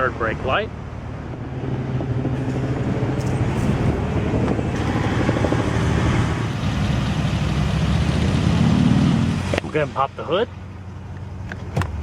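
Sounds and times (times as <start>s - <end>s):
car engine idling: 9.4s - 12.0s.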